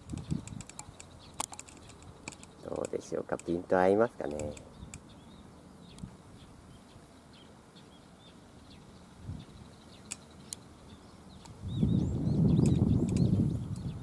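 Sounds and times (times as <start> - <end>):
sharp clicks: 0.0 - 3.6, 4.2 - 5.0, 12.6 - 13.9
small birds twittering: 0.0 - 14.0.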